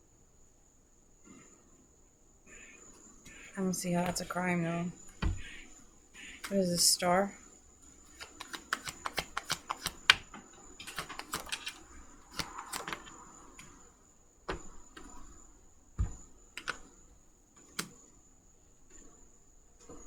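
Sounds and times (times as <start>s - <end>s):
cards tapping and knocking: 4.0s - 6.9s, 7.9s - 13.8s, 14.5s - 17.0s
cards shuffling: 6.3s - 7.0s, 7.9s - 13.8s.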